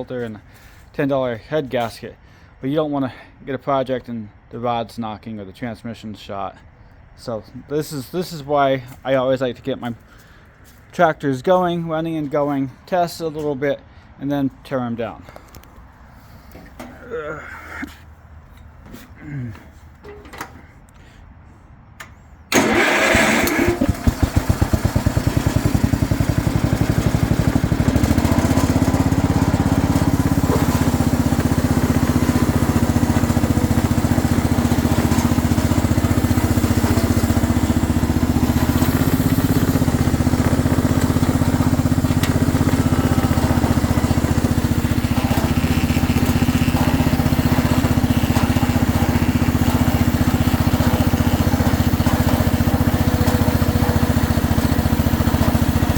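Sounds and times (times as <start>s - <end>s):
small engine starting and idling: 22.1s - 55.9s.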